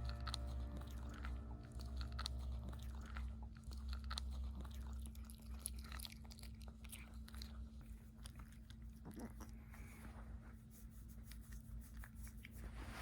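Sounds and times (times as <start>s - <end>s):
dog chewing a treat: 0.2s - 9.7s.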